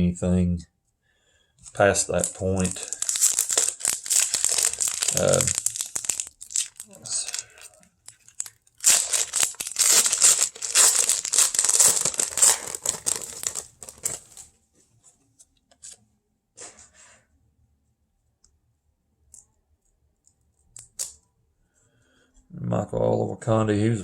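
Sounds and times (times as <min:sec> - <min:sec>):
cards ticking when handled: 0:01.7 - 0:14.1
wrapper tearing and crinkling: 0:01.7 - 0:14.5.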